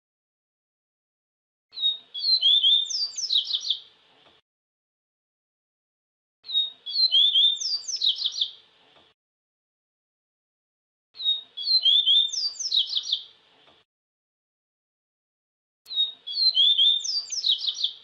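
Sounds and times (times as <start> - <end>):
bird singing whistled notes: 1.7 - 3.8, 6.4 - 8.6, 11.2 - 13.3, 15.9 - 18.0.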